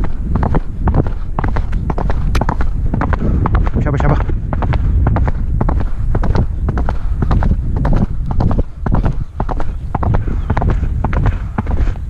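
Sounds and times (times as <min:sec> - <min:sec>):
horse hoofbeats galloping: 0:00.0 - 0:12.0.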